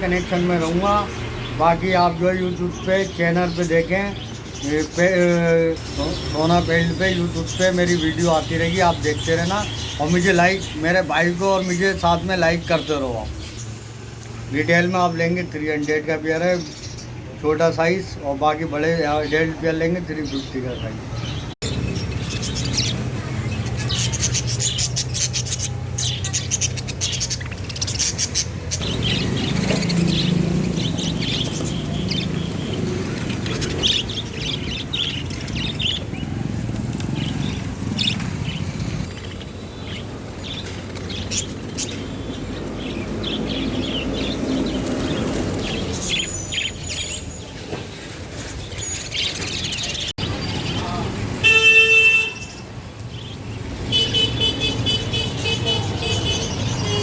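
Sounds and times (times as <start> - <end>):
budgerigars chirping: 15.7 - 36.4.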